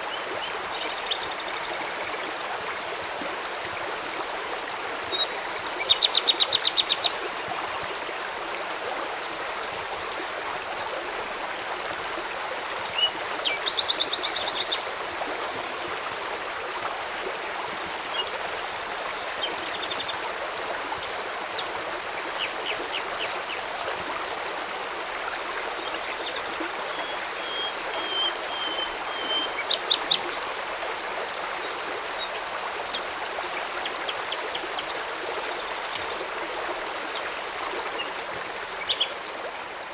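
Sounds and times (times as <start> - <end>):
flowing river water: 0.0 - 39.9
birds chirping: 18.1 - 20.2, 21.5 - 23.6.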